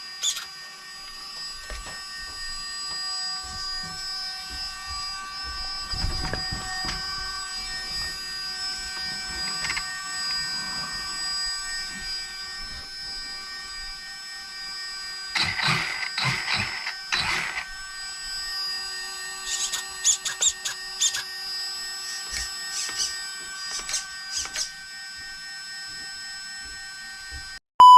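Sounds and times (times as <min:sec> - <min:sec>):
high whine of spinning flywheel: 0:00.0 - 0:27.6.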